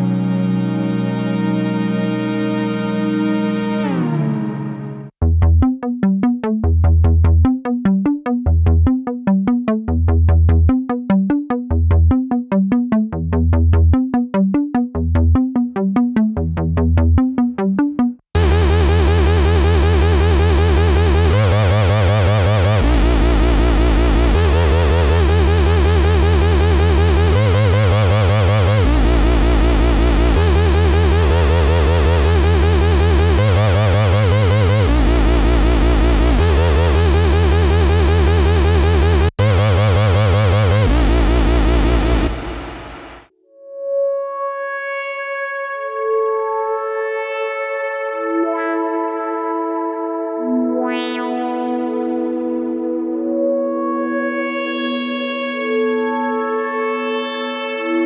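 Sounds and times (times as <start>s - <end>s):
synthesizer plucky bass notes: 5.2s - 43.3s
synthesizer wavering held tones: 18.4s - 43.2s.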